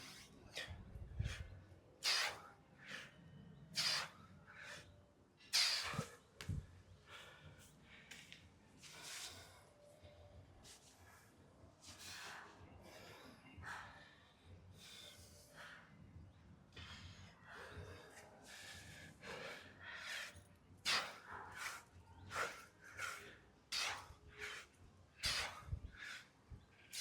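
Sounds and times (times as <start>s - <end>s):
man breathing hard: 0.0s - 9.9s, 11.8s - 16.0s, 16.7s - 27.0s.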